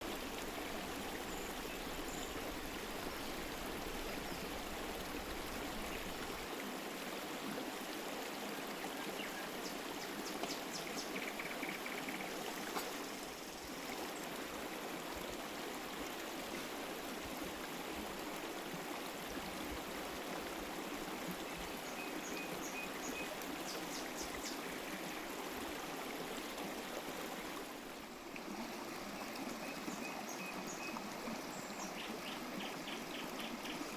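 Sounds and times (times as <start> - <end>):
running water: 0.0 - 33.9.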